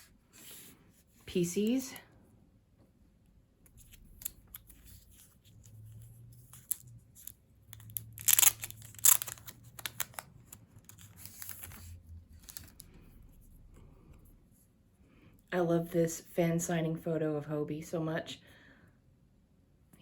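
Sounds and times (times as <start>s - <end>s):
packaging crackling: 3.7s - 12.9s
packaging crinkle: 3.7s - 12.9s
packaging ripping: 6.0s - 12.8s.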